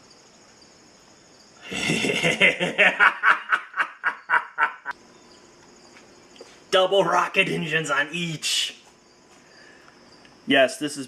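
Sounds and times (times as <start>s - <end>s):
crickets chirping: 0.0s - 11.0s
man laughing: 1.6s - 4.9s.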